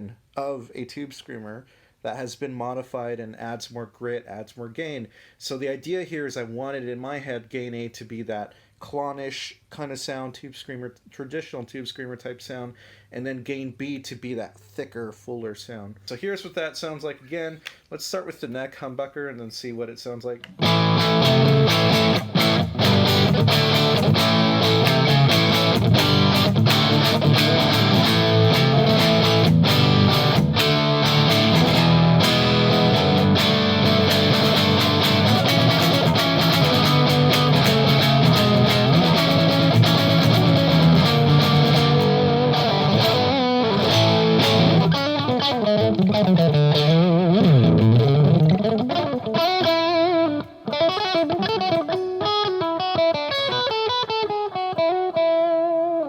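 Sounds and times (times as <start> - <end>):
overdriven electric guitar: 20.5 - 56.0.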